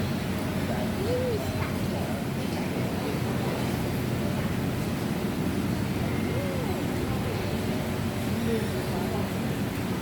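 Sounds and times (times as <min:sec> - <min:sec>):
distant voices: 0:00.0 - 0:03.9
low rumble and hiss: 0:00.0 - 0:10.0.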